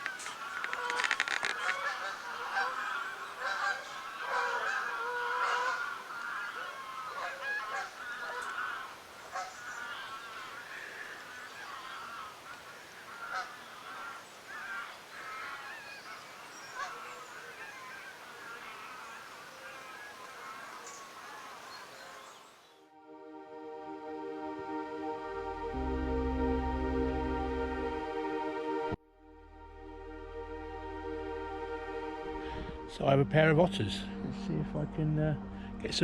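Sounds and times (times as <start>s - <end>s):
geese honking: 0.0s - 22.2s.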